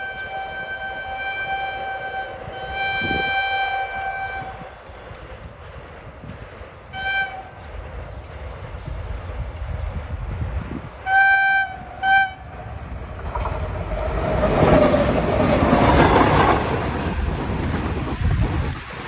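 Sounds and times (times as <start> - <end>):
locomotive horn blasts: 0.0 - 4.6, 7.0 - 7.5, 11.0 - 12.5
train rumble: 0.0 - 19.0.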